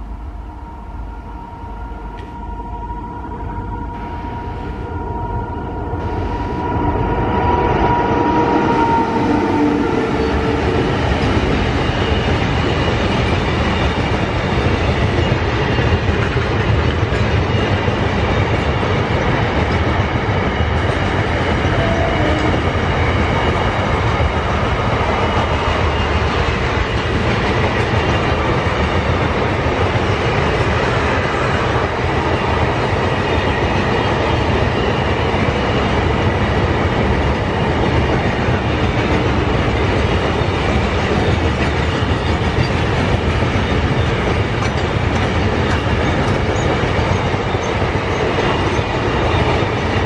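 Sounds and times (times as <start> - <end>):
locomotive whine: 0.0 - 50.0
train wheels rumbling on rails: 0.0 - 50.0.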